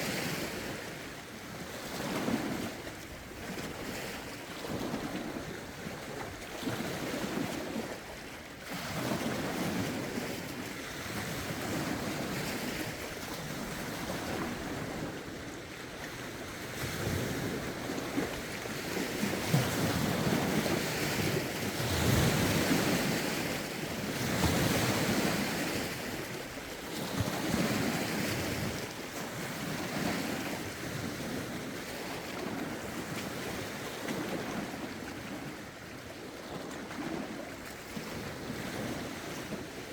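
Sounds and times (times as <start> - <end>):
lake waves lapping ashore: 0.0 - 39.9
wind on microphone: 0.0 - 39.9.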